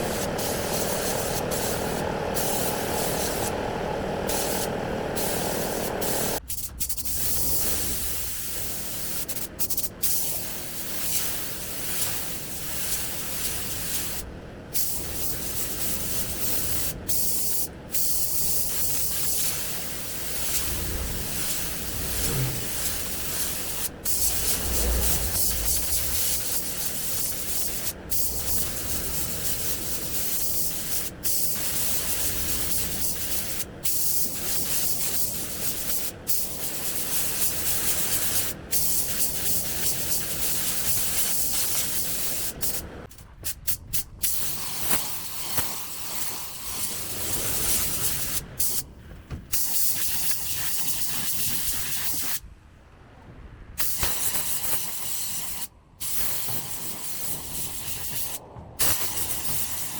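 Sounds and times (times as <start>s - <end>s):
paint spray gun hissing: 0.0s - 14.2s, 14.8s - 20.7s, 21.3s - 42.8s, 44.2s - 48.8s.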